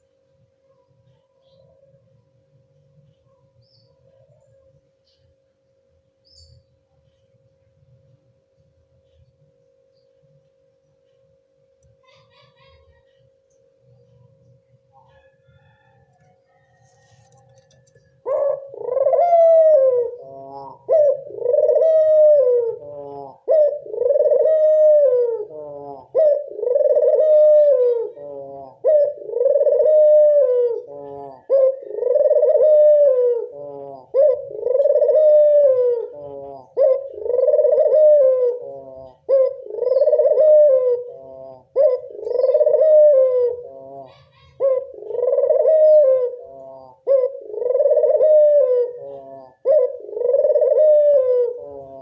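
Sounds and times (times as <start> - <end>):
dove cooing: 12.0 - 13.3, 13.9 - 52.0.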